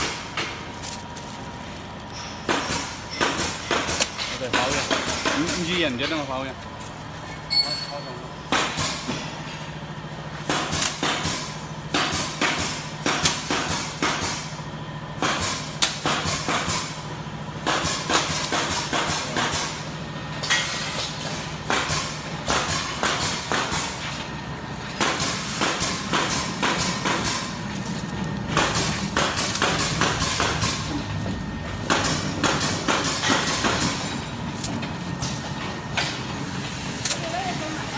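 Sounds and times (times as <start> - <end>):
machine motor hum: 8.7 - 37.9
machine clattering and knocking: 24.9 - 36.4.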